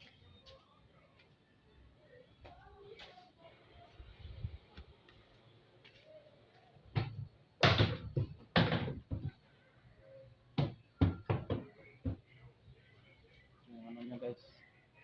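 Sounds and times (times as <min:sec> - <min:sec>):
washing machine parts knocking: 0:07.0 - 0:09.4.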